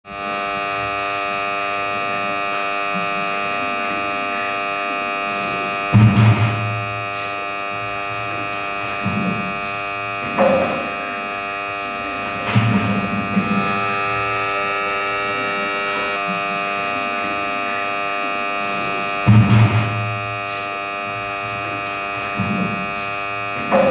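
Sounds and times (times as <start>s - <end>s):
ceiling fan motor humming: 0.1s - 23.9s
low thumps: 5.8s - 16.4s, 19.1s - 20.5s.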